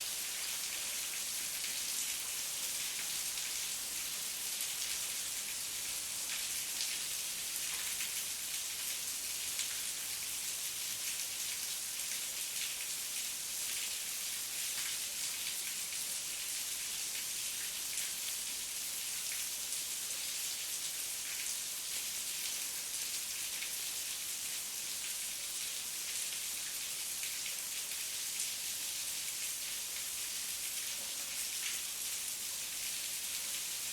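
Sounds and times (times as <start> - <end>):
raindrops pattering on a surface: 4.6 - 12.9.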